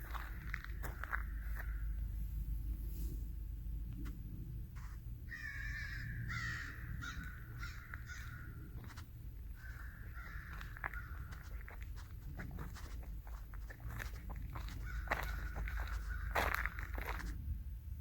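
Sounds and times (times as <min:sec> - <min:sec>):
footsteps crunching on trail: 0:00.0 - 0:01.9, 0:06.3 - 0:17.5
bird harsh calls: 0:05.3 - 0:08.6.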